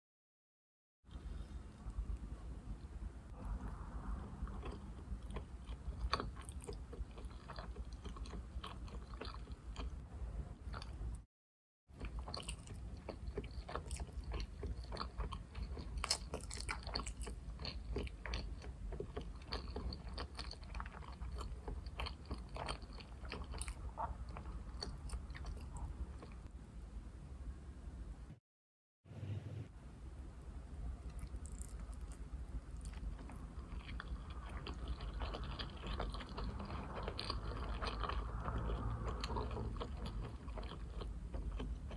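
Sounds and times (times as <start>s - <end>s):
chewing with wet mouth clicks: 4.5s - 10.0s, 12.0s - 26.4s, 31.1s - 41.9s.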